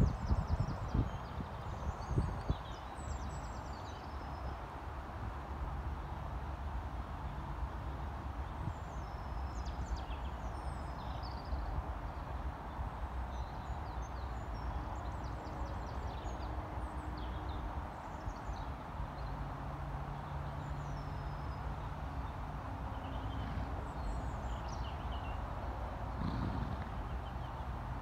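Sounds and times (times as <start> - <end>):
small birds chirping: 20.2 - 25.4.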